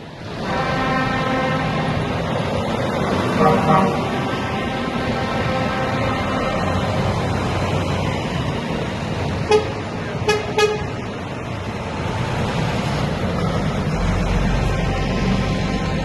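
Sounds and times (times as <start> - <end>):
heavy trucks rolling past: 0.0 - 16.0
truck horn toots: 0.4 - 2.2, 3.3 - 7.2, 9.4 - 11.0, 14.6 - 16.0.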